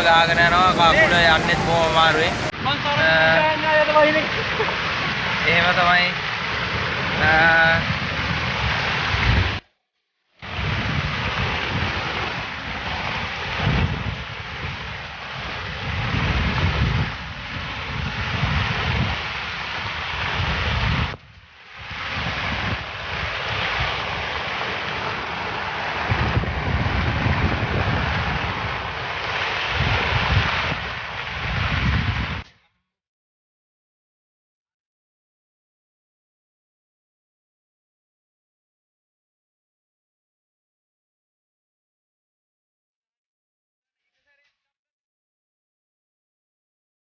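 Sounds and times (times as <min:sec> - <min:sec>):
heavy rain: 0:00.0 - 0:09.6, 0:10.4 - 0:32.4
rushing floodwater: 0:00.0 - 0:09.6, 0:10.4 - 0:31.7
wind buffeting microphone: 0:00.0 - 0:09.6, 0:10.4 - 0:32.5.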